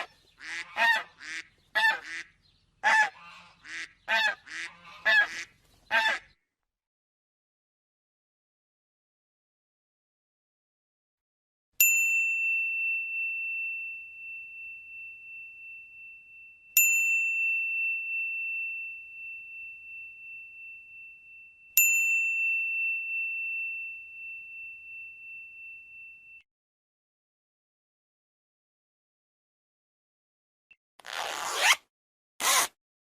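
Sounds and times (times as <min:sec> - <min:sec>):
high bell ding: 0:11.8 - 0:26.4.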